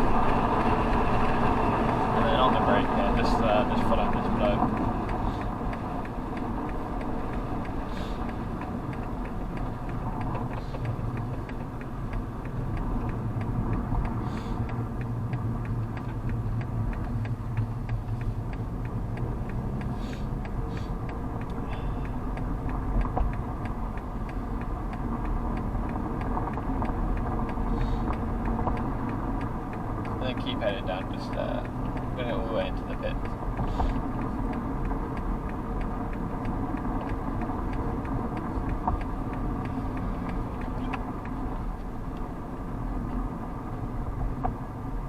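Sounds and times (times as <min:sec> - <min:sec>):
car engine rumble from cabin: 0:00.0 - 0:45.0
fast even ticking: 0:00.0 - 0:45.0.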